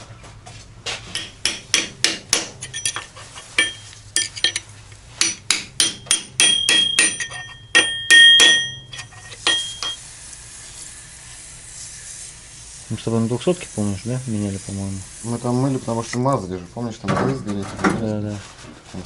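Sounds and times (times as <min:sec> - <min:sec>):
hammer striking metal: 0:01.1 - 0:04.6, 0:05.2 - 0:10.0.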